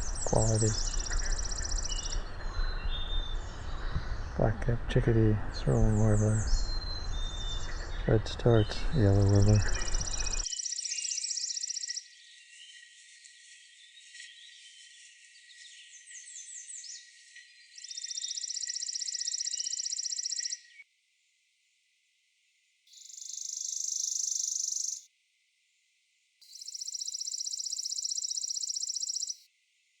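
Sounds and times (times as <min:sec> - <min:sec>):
sparrow trilling: 0:00.0 - 0:04.4, 0:05.6 - 0:12.1, 0:17.8 - 0:20.8, 0:22.9 - 0:25.1, 0:26.4 - 0:29.5
songbirds chirping: 0:00.0 - 0:21.8, 0:22.5 - 0:25.1, 0:25.7 - 0:29.5.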